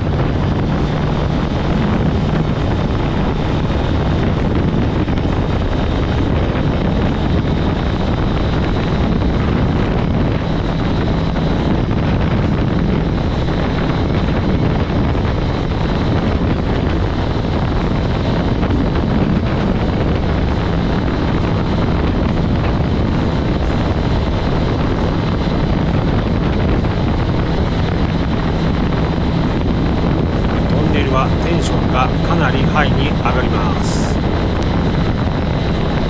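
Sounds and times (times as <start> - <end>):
motorcycle engine cruising: 0.0 - 7.8
wind rushing over microphone: 0.0 - 32.3.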